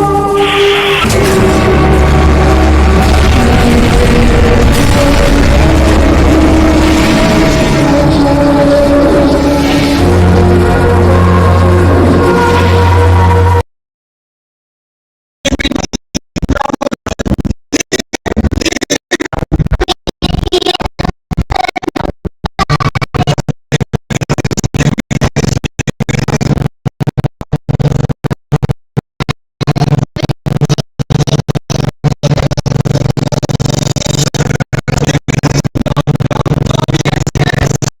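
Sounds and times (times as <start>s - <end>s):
low beat: 0.0s - 13.6s
stuttering background music: 0.0s - 13.6s.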